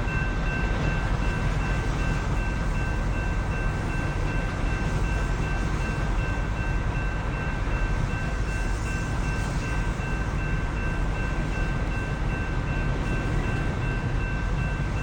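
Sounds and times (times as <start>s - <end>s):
train rumbling past: 0.0s - 15.0s.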